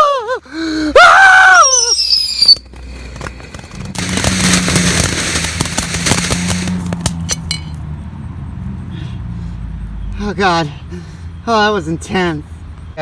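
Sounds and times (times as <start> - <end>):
firework whistle: 1.6 - 2.6, 3.9 - 6.8
fireworks crackling and popping: 1.7 - 7.7.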